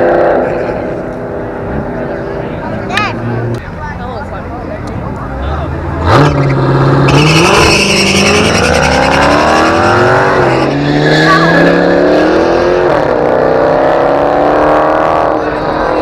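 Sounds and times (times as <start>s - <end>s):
truck engine revving: 5.2s - 16.0s.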